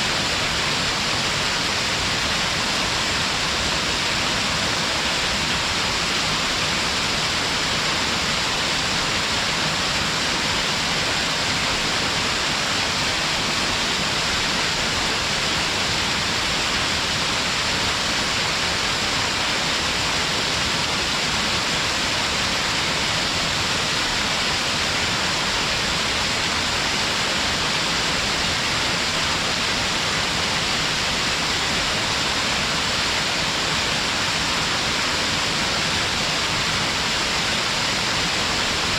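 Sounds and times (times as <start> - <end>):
rush of falling water: 0.0 - 38.9.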